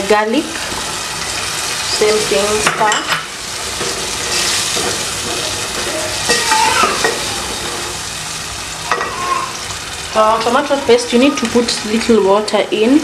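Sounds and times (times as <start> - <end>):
vegetables sizzling in a pot: 0.0 - 13.0
wooden spoon scraping a pot: 3.6 - 8.0.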